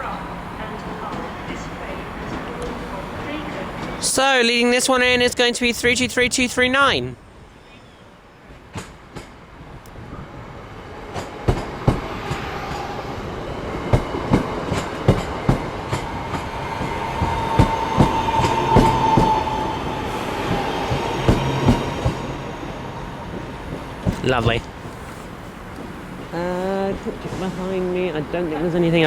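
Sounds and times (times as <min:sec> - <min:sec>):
train wheels clicking over rail joints: 0:08.5 - 0:10.0, 0:11.1 - 0:12.8, 0:13.7 - 0:28.7.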